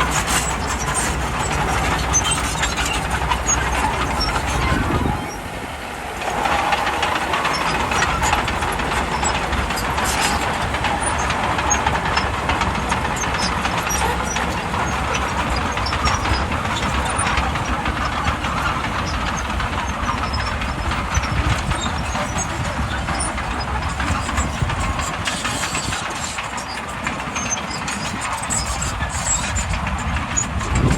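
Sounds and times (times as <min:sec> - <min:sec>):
bulldozer engine running: 0:00.0 - 0:30.9.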